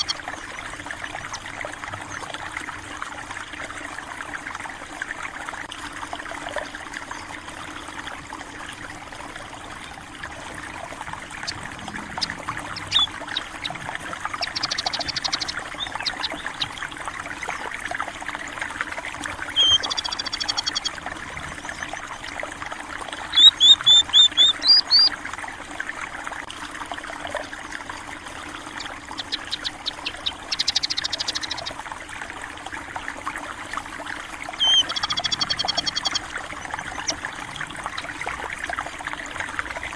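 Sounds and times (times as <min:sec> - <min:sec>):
birds chirping: 0:00.0 - 0:00.5, 0:11.0 - 0:17.7, 0:19.4 - 0:22.4, 0:23.2 - 0:25.1, 0:28.5 - 0:31.8, 0:34.6 - 0:38.4
stream trickling and rushing: 0:00.0 - 0:39.9.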